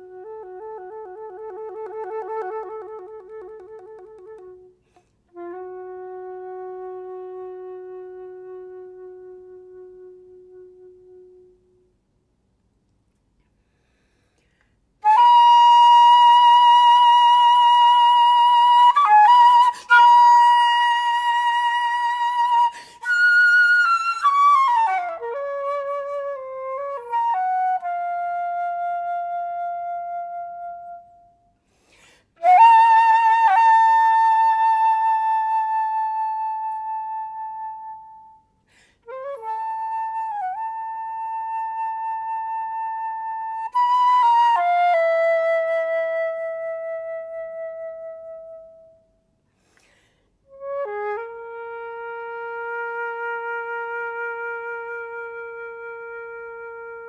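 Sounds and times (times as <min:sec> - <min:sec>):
solo flute: 0:00.0 - 0:12.3, 0:13.7 - 0:57.0
flute player breathing: 0:04.7 - 0:05.3, 0:13.4 - 0:15.0, 0:19.6 - 0:20.0, 0:22.7 - 0:23.1, 0:31.5 - 0:32.4, 0:38.4 - 0:39.2, 0:49.4 - 0:50.5.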